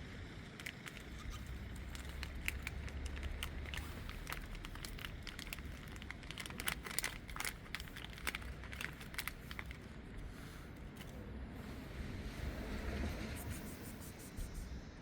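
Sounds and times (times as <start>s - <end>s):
plastic crinkling and rustling: 0.6s - 10.0s
low rumble: 11.2s - 15.0s.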